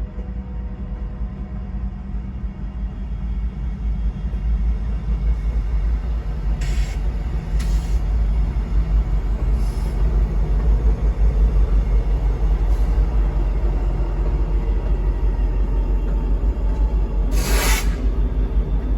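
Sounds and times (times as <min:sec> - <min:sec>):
freight train rumble: 0:00.0 - 0:18.9
short hisses: 0:17.3 - 0:18.1.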